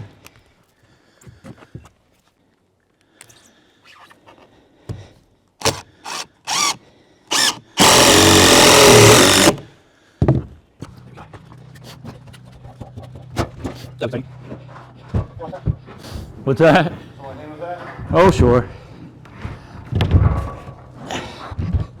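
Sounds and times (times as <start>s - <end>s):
power drill bursts: 5.6s - 9.6s.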